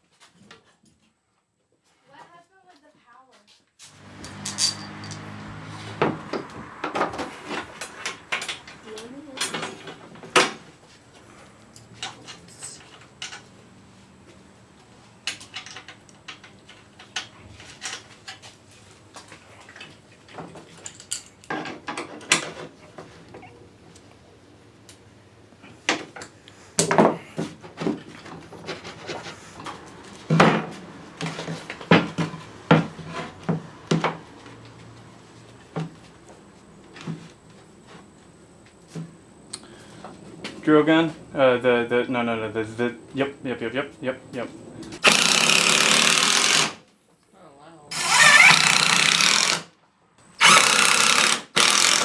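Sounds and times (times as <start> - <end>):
wooden pieces and tools clattering: 4.0 - 10.7, 47.9 - 49.6, 50.4 - 52.0.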